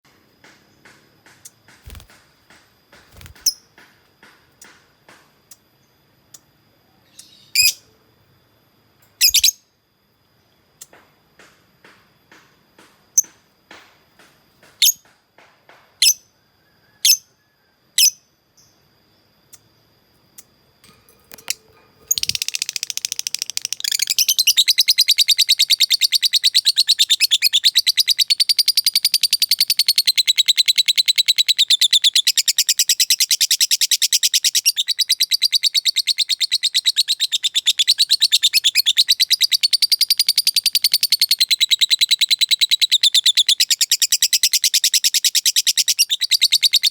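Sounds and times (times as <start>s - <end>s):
lovebird chirping and trilling: 3.1s - 3.6s, 9.2s - 9.6s, 21.3s - 46.9s.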